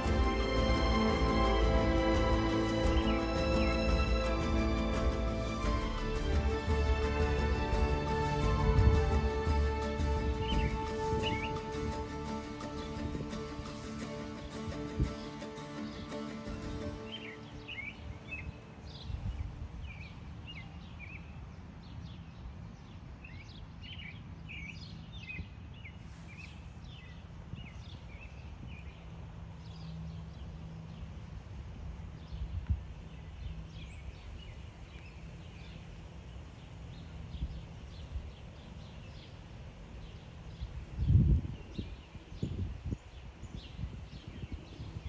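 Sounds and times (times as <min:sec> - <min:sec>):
low rumble: 0:00.0 - 0:17.1
songbirds chirping: 0:00.0 - 0:45.0.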